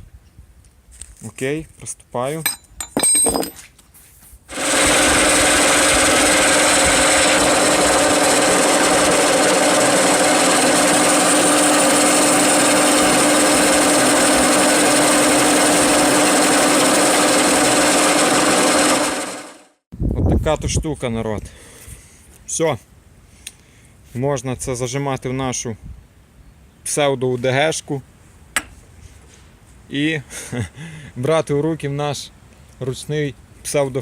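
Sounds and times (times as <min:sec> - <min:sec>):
power tool grinding steel: 0:04.5 - 0:19.6.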